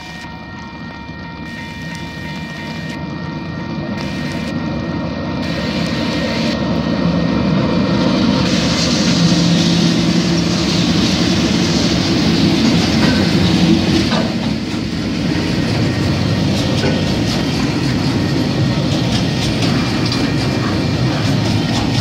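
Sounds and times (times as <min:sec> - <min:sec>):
diesel locomotive engine hum: 0:00.0 - 0:22.0
wagon wheels clattering over rail joints: 0:15.7 - 0:22.0.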